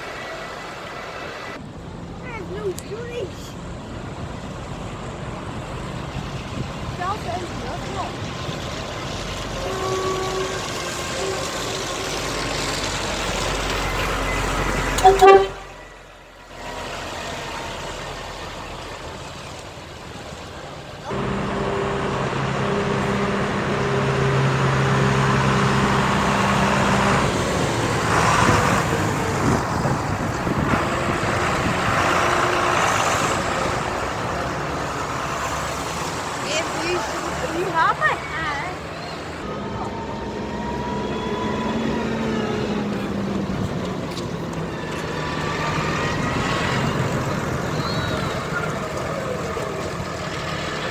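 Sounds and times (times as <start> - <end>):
trucks passing: 0.0 - 50.9
truck horns tooting: 9.5 - 12.6, 14.2 - 16.1, 21.1 - 34.8, 36.6 - 43.2.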